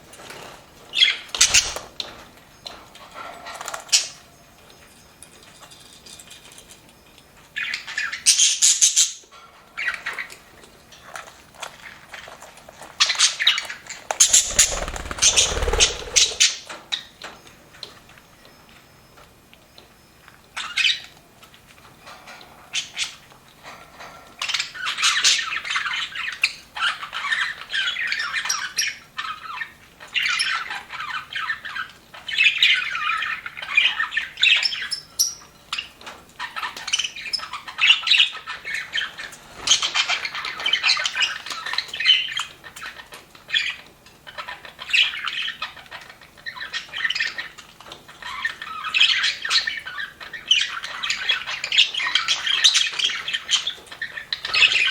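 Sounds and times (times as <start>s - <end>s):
budgerigars chattering: 14.2s - 16.6s.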